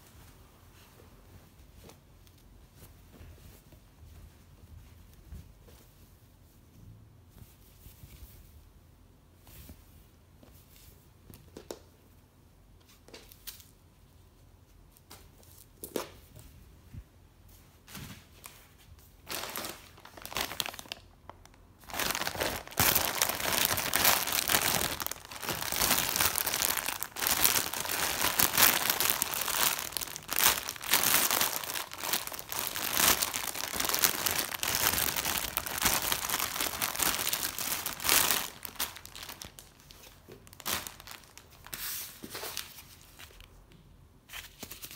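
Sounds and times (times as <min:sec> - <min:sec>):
plastic bag crinkling: 0:19.2 - 0:41.8.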